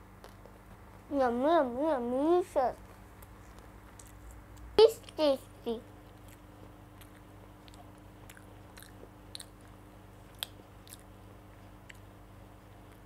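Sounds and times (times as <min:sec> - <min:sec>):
low steady hum: 0:00.0 - 0:13.0
child chewing: 0:02.8 - 0:05.2, 0:06.0 - 0:12.2.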